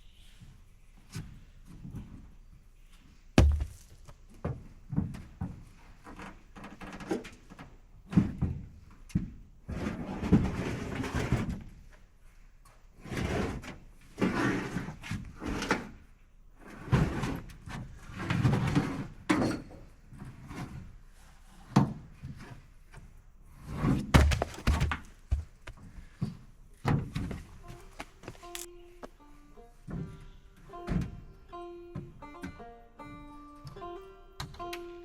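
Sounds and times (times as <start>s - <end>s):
knocks and thuds of handling: 3.4s - 5.6s, 24.1s - 28.7s.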